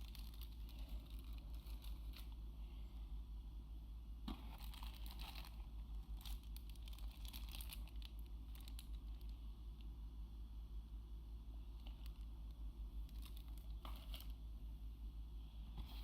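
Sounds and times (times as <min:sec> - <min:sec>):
packaging crinkling and rustling: 0:00.0 - 0:02.4, 0:04.3 - 0:09.4, 0:13.0 - 0:14.4
steady low hum: 0:00.0 - 0:16.0.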